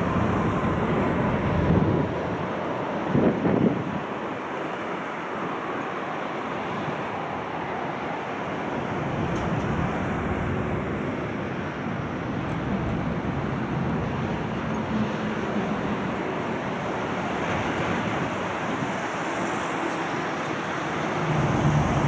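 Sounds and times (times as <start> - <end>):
wind on microphone: 0.0 - 4.2
train rumbling across steel bridge: 0.0 - 22.0.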